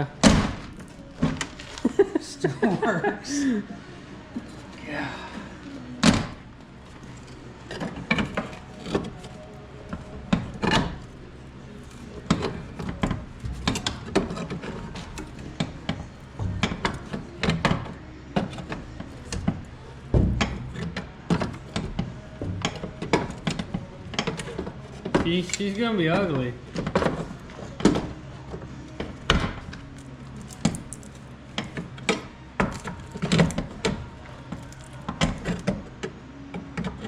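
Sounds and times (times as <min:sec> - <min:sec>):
metal door being bent: 0:00.2 - 0:01.6, 0:06.0 - 0:06.5, 0:10.3 - 0:11.2, 0:12.2 - 0:25.4
heavy thud: 0:20.1 - 0:20.8.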